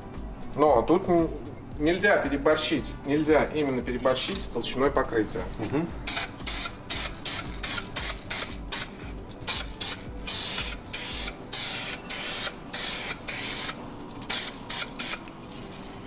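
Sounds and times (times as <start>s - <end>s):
spray paint hissing from can: 6.0s - 16.0s.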